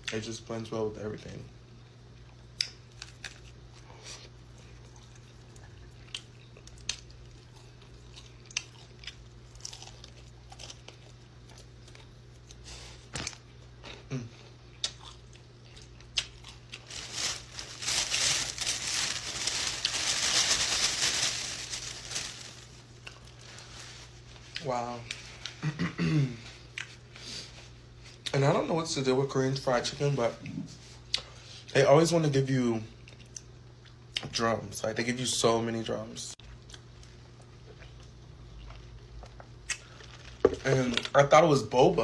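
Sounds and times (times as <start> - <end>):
crunchy chewing of fried chicken: 2.0 - 25.7, 32.9 - 34.2, 36.4 - 41.1
eating bites and smacks: 4.8 - 14.1, 14.7 - 16.9.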